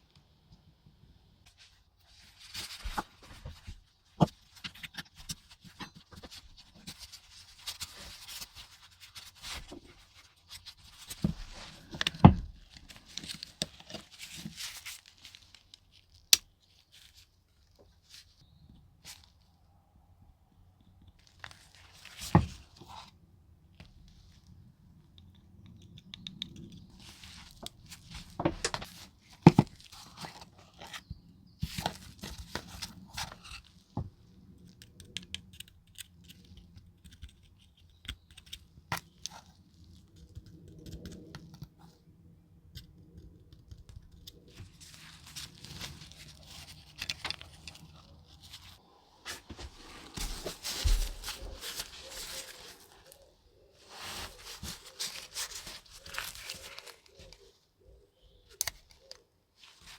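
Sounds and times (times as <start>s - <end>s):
rustling scraping noise: 44.5s - 57.5s.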